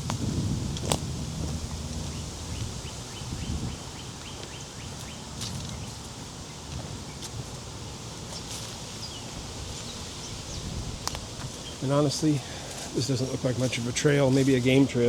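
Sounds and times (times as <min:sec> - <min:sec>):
low rustling: 0:00.0 - 0:06.2.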